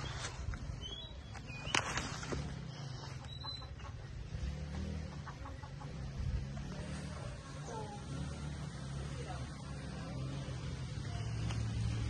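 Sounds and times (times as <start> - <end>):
high bird calls: 0.0 - 4.2
low steady rumble: 0.0 - 12.0.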